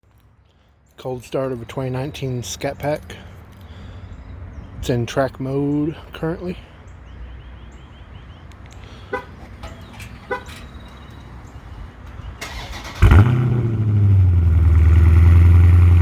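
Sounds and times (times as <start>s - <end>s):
car engine starting and idling: 9.1s - 16.0s.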